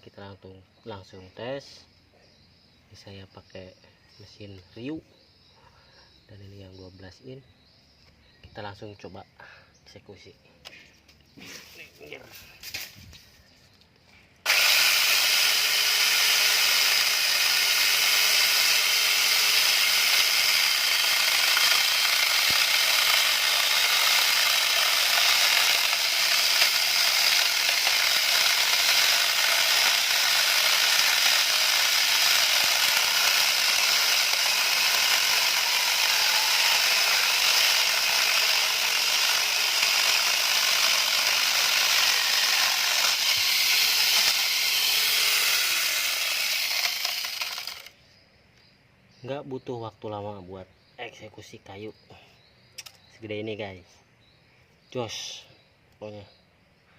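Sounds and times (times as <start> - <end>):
electric saw cutting wood: 14.4 - 48.0.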